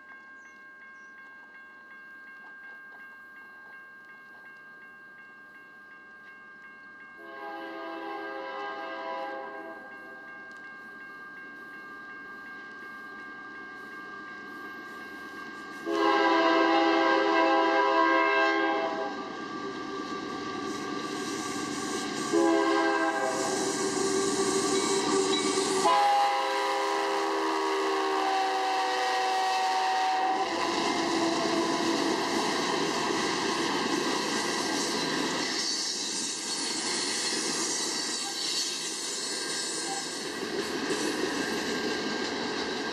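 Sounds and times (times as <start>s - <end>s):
freight train wheels rumbling: 0.0s - 42.9s
locomotive air horn blasts: 7.2s - 9.9s, 15.8s - 19.1s, 22.2s - 23.7s, 25.8s - 31.9s.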